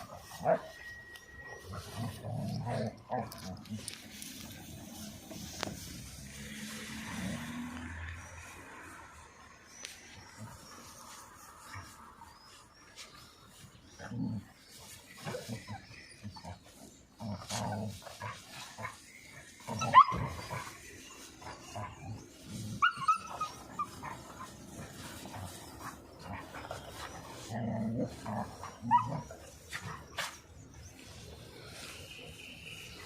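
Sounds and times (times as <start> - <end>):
dogs play-growling: 0.0 - 5.9, 6.6 - 8.3, 10.2 - 31.7
dog squeaky yips and whines: 19.7 - 20.6, 22.8 - 24.2, 28.8 - 30.4.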